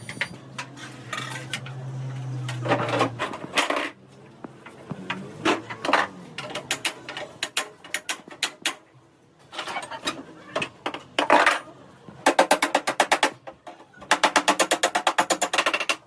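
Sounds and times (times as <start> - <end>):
metal scrapes: 0.0 - 4.0.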